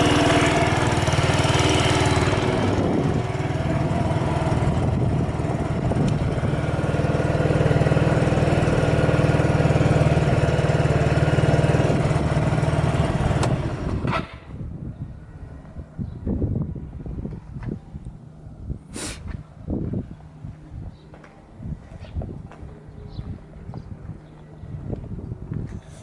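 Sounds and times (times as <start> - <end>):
scooter engine idling: 0.0 - 14.6.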